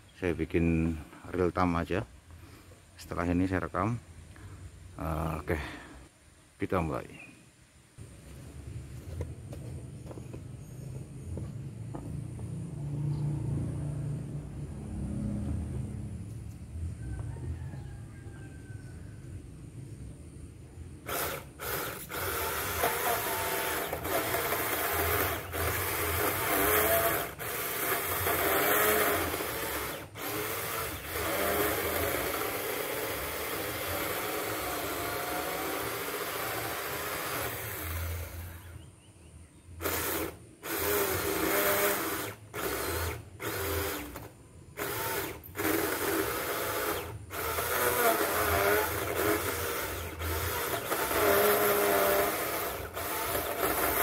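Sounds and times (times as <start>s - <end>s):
chainsaw cutting wood: 21.0s - 38.8s, 39.8s - 54.0s.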